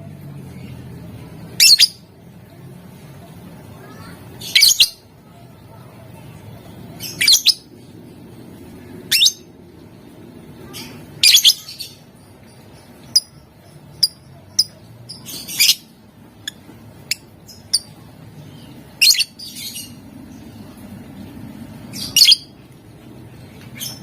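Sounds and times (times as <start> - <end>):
bird chirping: 1.5 - 2.1, 3.9 - 5.0, 6.9 - 7.8, 10.8 - 20.6, 21.9 - 22.6.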